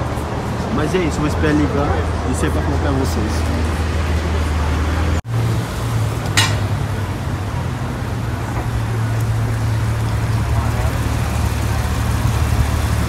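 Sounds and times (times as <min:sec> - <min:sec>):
car engine running at low revs: 0:07.0 - 0:13.0.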